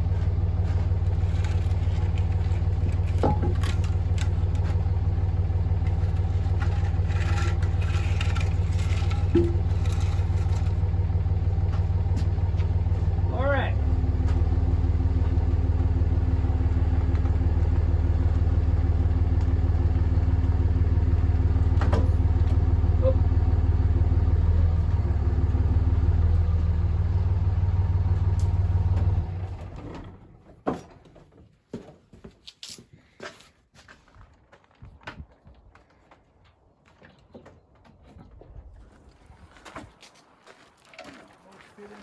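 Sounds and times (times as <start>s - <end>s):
vehicle engine running: 0.0s - 30.4s.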